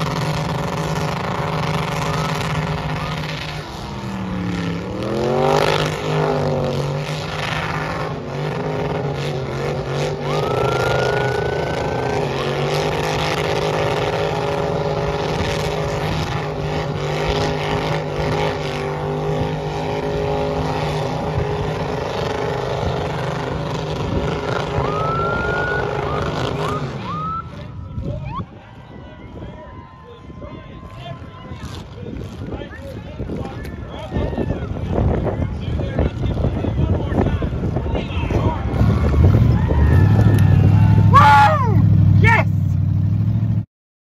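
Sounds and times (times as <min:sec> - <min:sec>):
car engine at high revs: 0:00.0 - 0:27.8
short rising whistle: 0:24.8 - 0:27.6.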